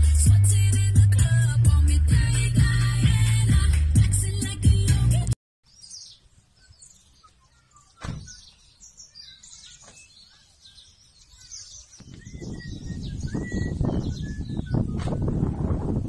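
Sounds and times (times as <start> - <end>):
birds chirping and twittering: 5.6 - 16.0
thump: 8.0 - 8.4.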